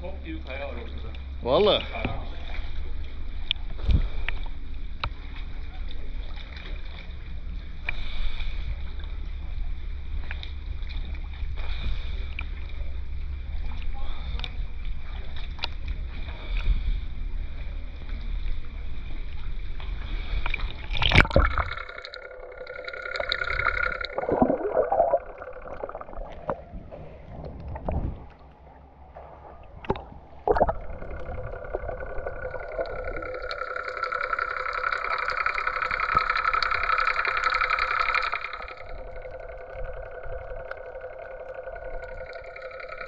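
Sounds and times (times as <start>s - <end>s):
motorboat engine drone: 0.0s - 27.3s, 28.1s - 43.0s
water splashing: 20.4s - 43.0s.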